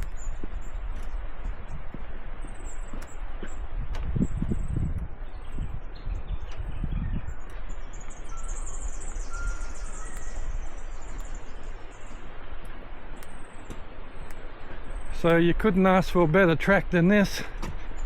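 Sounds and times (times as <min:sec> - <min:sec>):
bird chirps: 0:00.0 - 0:16.4
bird trilling: 0:06.9 - 0:12.2
outdoor hiss: 0:08.8 - 0:18.0.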